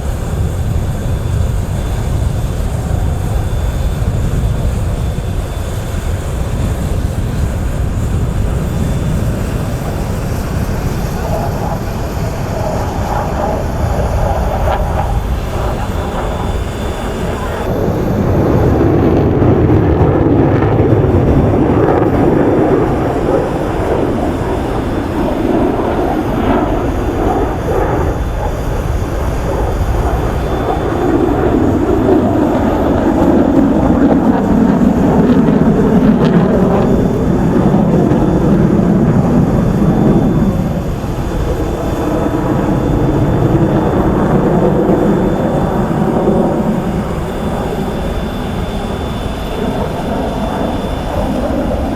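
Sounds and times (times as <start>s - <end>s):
fighter jet noise: 0.0s - 51.9s.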